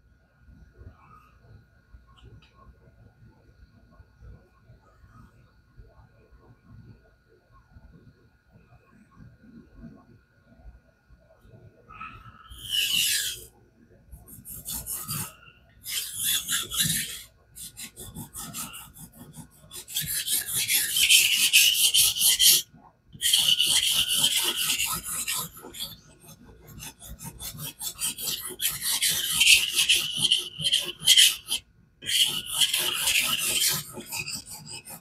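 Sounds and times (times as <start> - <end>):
knife scraping on whetstone: 14.3 - 22.6, 23.2 - 35.0.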